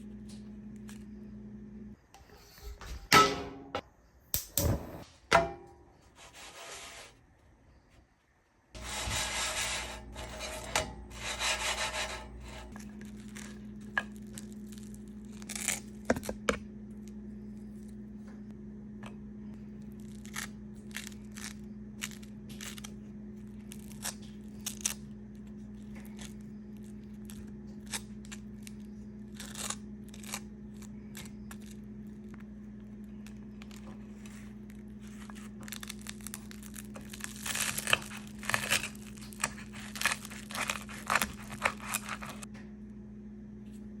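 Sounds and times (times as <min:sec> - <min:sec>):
steady low hum: 0:00.0 - 0:44.0
crinkling and rustling: 0:19.8 - 0:42.5.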